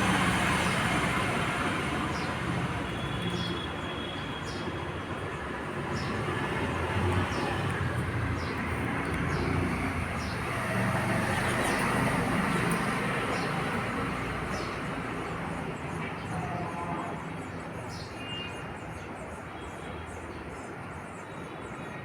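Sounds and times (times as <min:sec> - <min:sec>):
passing vehicle rumbling: 0:00.0 - 0:03.4, 0:06.0 - 0:15.2.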